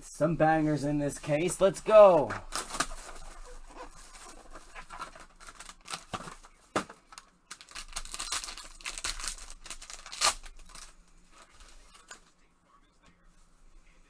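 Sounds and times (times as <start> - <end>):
packaging tearing and crinkling: 2.4 - 12.1.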